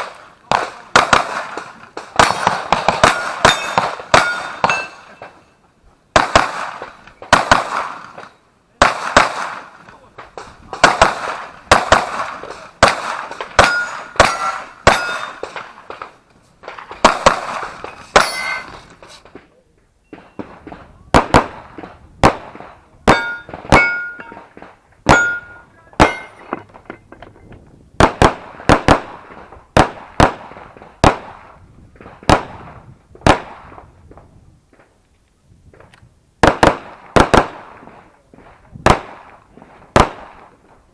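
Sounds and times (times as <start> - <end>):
steel targets clanging: 3.1 - 5.6, 13.6 - 15.6, 17.8 - 19.0, 23.1 - 24.5, 25.1 - 27.1.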